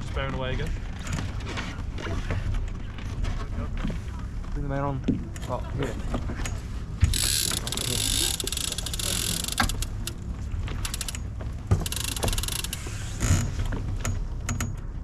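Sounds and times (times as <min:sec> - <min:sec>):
water noise: 0:06.7 - 0:12.9
winch ratchet clicking: 0:07.0 - 0:13.4.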